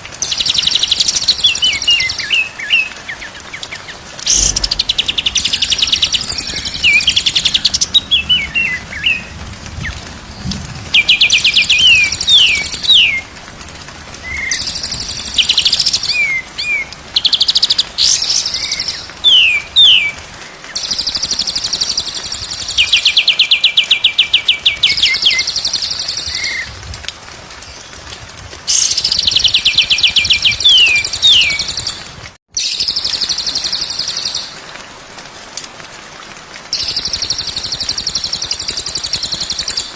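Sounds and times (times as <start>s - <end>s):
songbird singing: 0.2s - 13.3s, 14.2s - 26.7s, 28.7s - 34.6s
harsh scratchy bird chatter: 4.2s - 7.9s.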